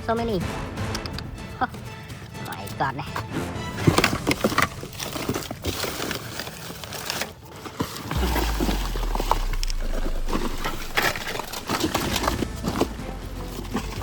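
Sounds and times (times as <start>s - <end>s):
plastic items clicking together: 2.2s - 8.2s
rustling: 3.7s - 14.0s
low rumble: 8.2s - 12.9s.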